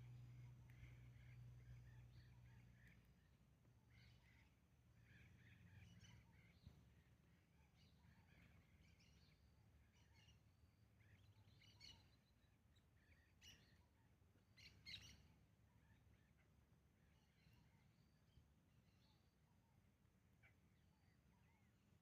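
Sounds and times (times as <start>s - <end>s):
birds chirping: 0.0s - 10.4s, 11.1s - 15.3s
low background hum: 0.0s - 22.0s.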